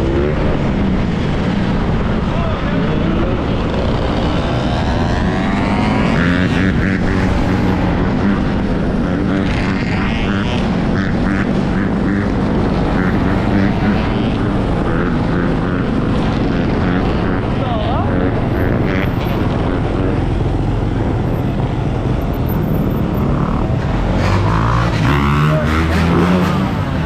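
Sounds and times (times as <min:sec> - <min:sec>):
motorbike engine drone: 0:00.0 - 0:27.0.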